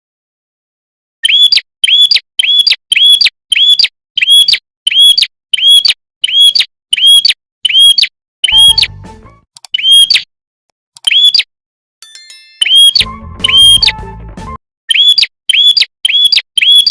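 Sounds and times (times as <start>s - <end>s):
sharp high bird chirp: 1.2s - 8.9s, 9.7s - 10.3s, 11.0s - 11.5s, 12.4s - 14.0s, 14.9s - 16.9s.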